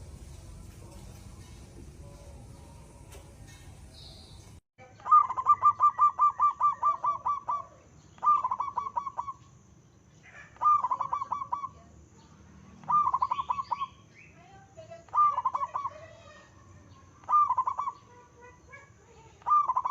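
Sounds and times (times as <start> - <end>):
dove cooing in staccato notes: 5.1 - 9.4, 10.5 - 11.7, 17.2 - 18.0.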